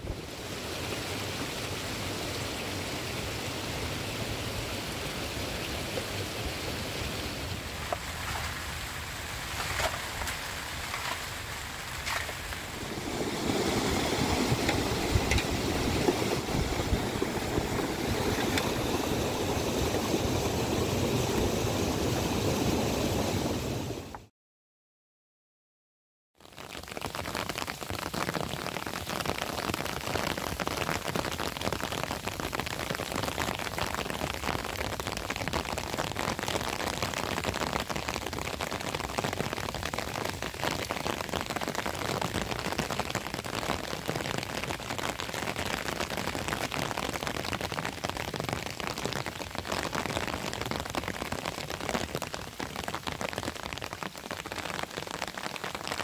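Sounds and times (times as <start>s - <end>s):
heavy rain: 0.0s - 24.3s, 26.4s - 56.0s.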